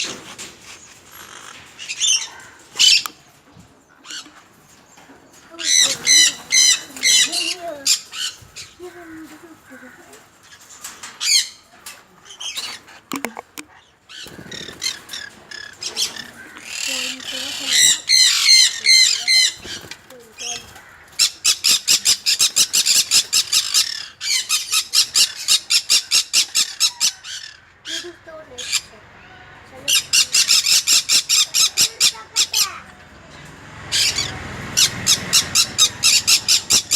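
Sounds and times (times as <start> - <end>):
parrot squawking: 0.0 - 3.2, 5.5 - 11.7, 12.3 - 36.9
conure squawking: 33.9 - 36.9.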